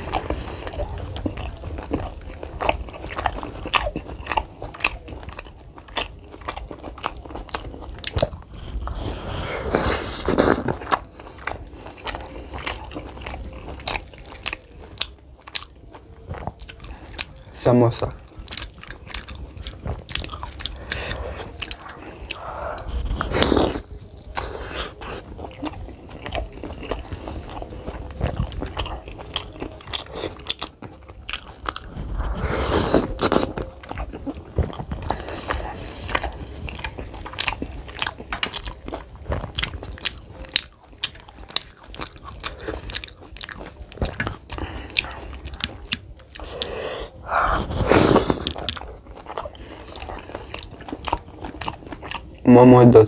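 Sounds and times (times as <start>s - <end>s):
person chewing crunchy food: 0.0s - 53.0s
mouth sounds: 8.0s - 37.0s, 43.7s - 51.2s.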